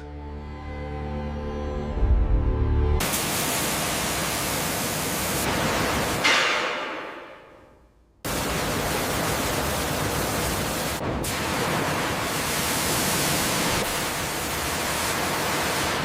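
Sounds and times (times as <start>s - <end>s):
steady even hiss: 3.0s - 7.6s, 8.3s - 16.0s.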